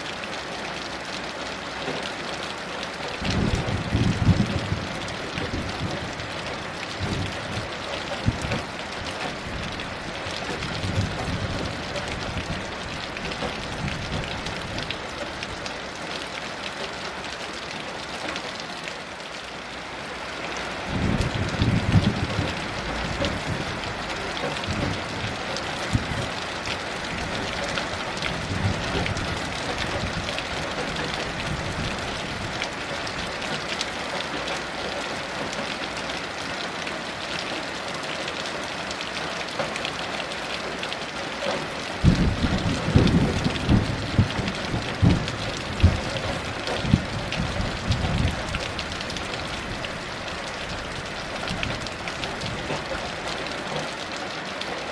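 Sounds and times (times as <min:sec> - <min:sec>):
heavy rain falling: 0:00.0 - 0:54.9
distant thunder rumbling: 0:20.9 - 0:26.4, 0:42.0 - 0:49.9.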